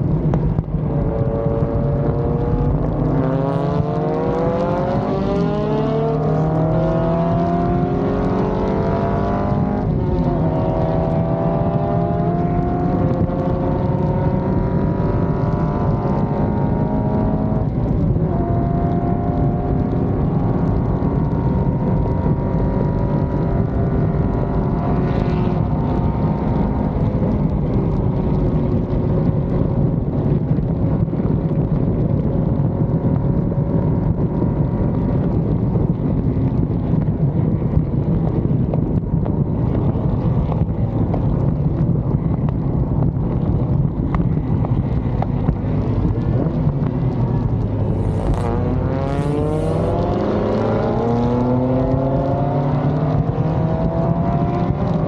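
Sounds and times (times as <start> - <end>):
sports car engine accelerating: 0.0 - 55.0.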